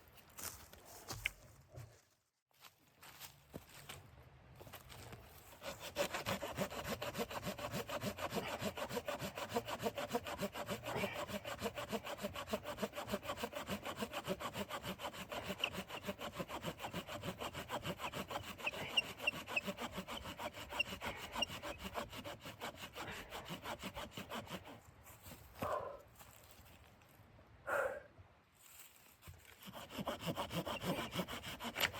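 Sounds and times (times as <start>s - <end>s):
hand saw cutting wood: 5.4s - 24.8s, 29.3s - 31.9s.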